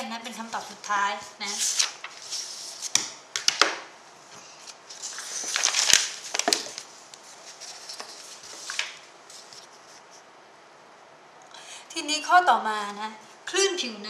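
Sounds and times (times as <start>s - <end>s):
handling rustling and scraping: 4.3s - 10.3s.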